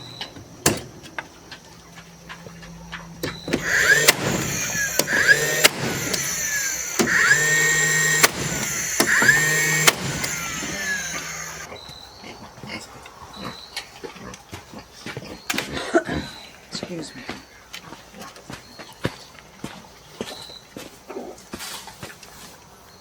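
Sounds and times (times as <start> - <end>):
power tool motor whine: 3.3 - 11.7
power tool switch click: 3.5 - 11.7.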